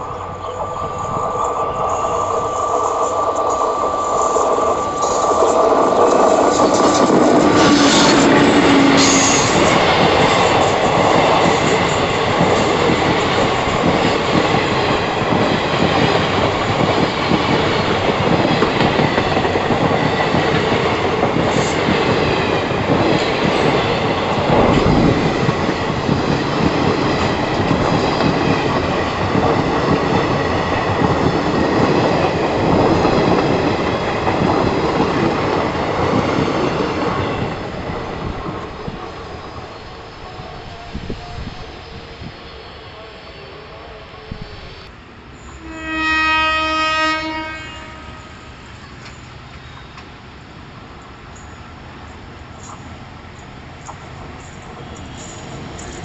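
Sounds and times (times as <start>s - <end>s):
high wheel squeal: 0.0s - 9.9s
train wheels clattering on rails: 0.0s - 41.3s, 51.3s - 56.0s.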